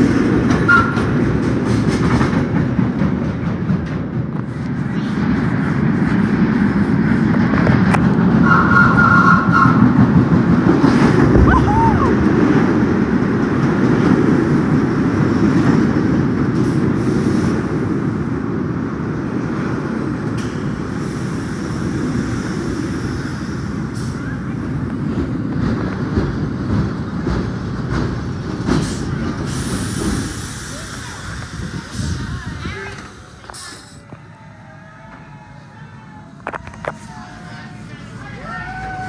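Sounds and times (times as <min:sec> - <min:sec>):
subway train rumbling on rails: 0:00.0 - 0:39.0.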